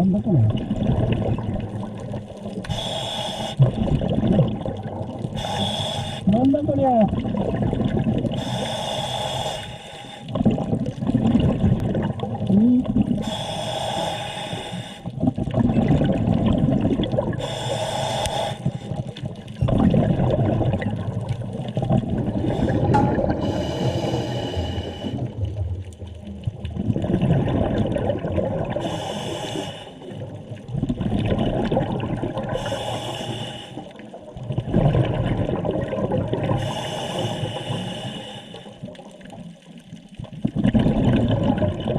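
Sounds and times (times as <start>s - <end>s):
exhaled bubbles rushing: 0.0s - 8.6s, 10.3s - 13.4s, 15.0s - 17.6s, 18.6s - 29.0s, 30.0s - 32.8s, 33.8s - 36.8s, 38.8s - 41.9s
underwater bubbling and gurgling: 0.0s - 41.9s.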